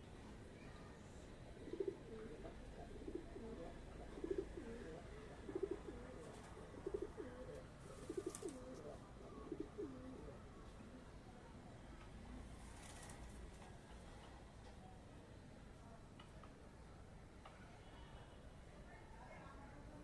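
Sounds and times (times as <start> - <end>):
pigeon cooing: 1.6 - 10.4.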